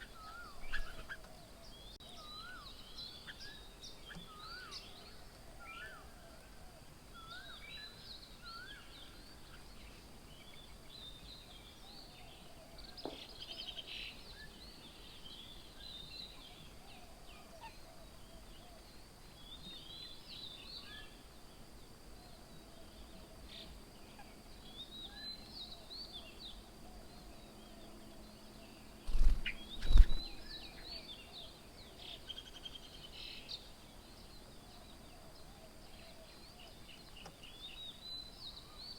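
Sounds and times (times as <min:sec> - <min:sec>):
birds chirping: 0:00.0 - 0:06.2, 0:22.8 - 0:38.9.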